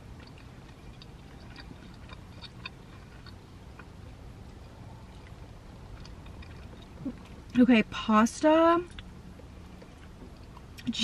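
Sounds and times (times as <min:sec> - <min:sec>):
person chewing: 0:00.0 - 0:07.6, 0:08.9 - 0:10.9
low steady hum: 0:00.0 - 0:11.0.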